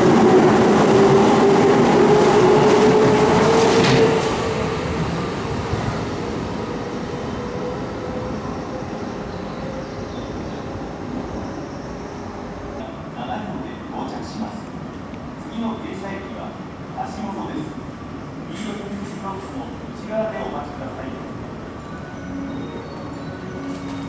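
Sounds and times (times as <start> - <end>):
electric train passing: 0.0 - 12.8, 21.2 - 24.0.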